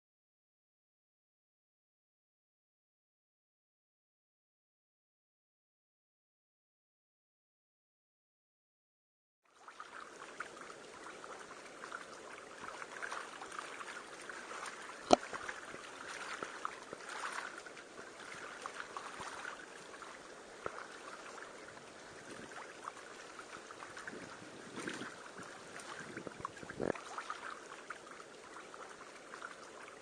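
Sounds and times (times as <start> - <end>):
water trickling and splashing: 9.5 - 30.0.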